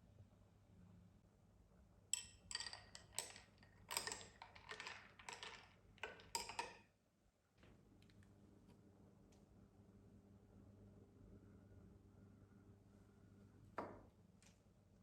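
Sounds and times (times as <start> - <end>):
hard objects clicking and clinking: 2.2 - 6.9.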